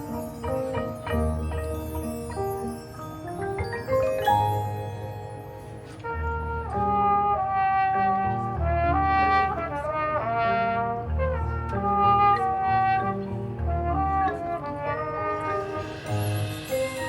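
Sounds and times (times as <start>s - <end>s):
brass band playing chords: 3.4s - 17.0s.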